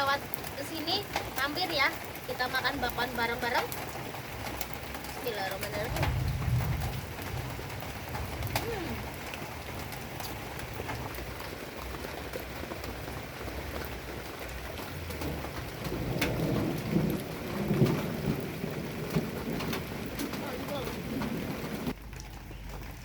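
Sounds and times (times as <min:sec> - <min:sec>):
raindrops ticking: 0:00.0 - 0:23.0
steady rain falling: 0:00.0 - 0:23.0
irregular knocks and rustles: 0:03.6 - 0:23.0
low rumble: 0:05.8 - 0:09.2.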